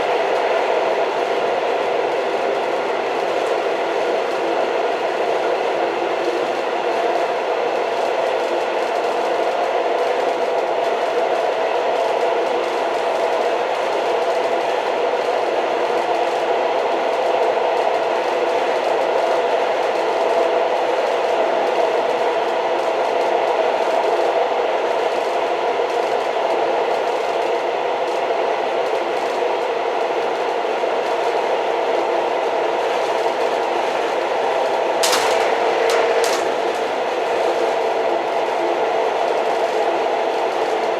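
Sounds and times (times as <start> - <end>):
train clattering on rails: 33.8 - 38.2
sharp clack: 35.0 - 37.2.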